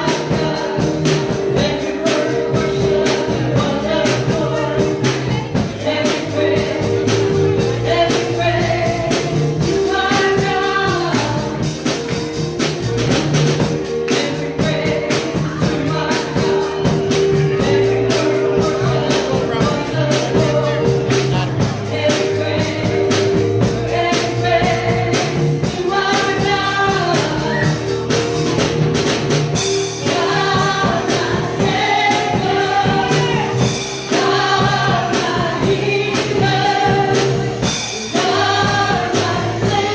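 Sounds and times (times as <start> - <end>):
drum and tambourine beat: 0.0 - 39.9
gospel music with singing: 0.0 - 39.9
held keyboard chords: 0.0 - 39.9.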